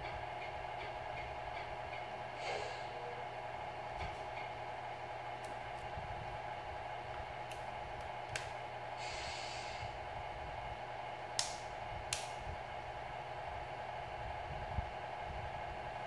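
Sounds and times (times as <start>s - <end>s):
short hiss: 9.0s - 9.8s.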